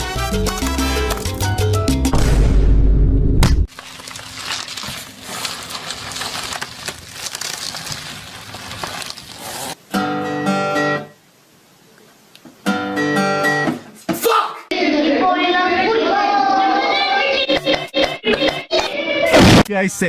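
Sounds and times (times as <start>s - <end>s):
acoustic guitar strummed chords: 9.9s - 11.2s, 12.7s - 13.8s
noise with scattered clicks: 11.8s - 12.7s.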